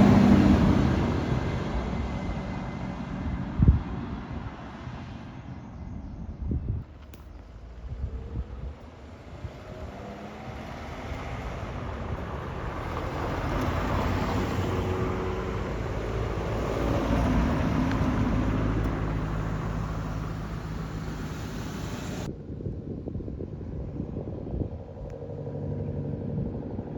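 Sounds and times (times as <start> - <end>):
car driving by: 0.0 - 5.4, 7.4 - 22.3.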